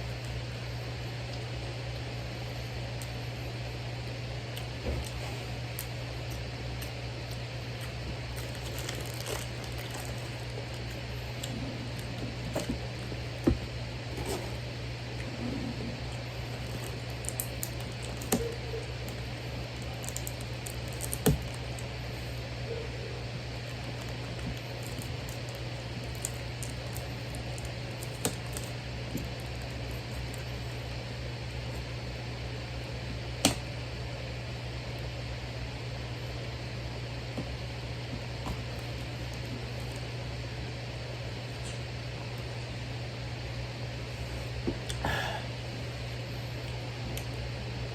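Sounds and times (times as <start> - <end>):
steady low hum: 0.0 - 47.9
eating and food-handling noises: 4.4 - 32.0, 37.3 - 40.3.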